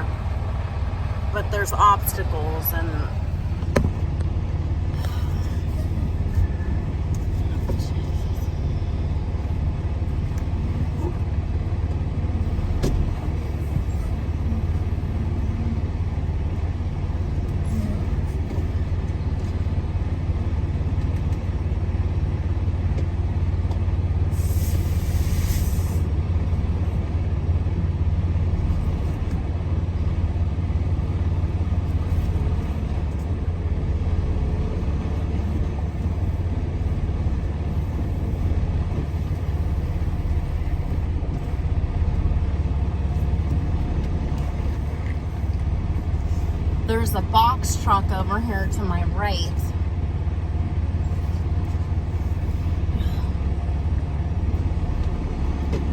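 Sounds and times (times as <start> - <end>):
diesel truck engine rumbling: 0.0 - 55.9
air brakes hissing: 24.3 - 26.1.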